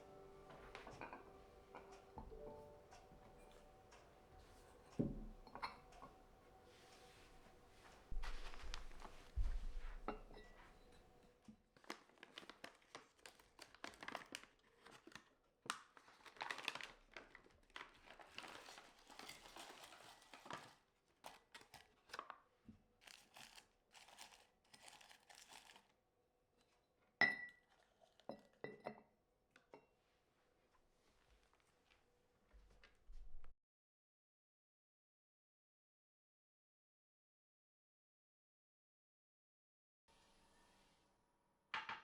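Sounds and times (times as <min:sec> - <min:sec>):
wrapping crinkling and rustling: 0:06.6 - 0:26.0.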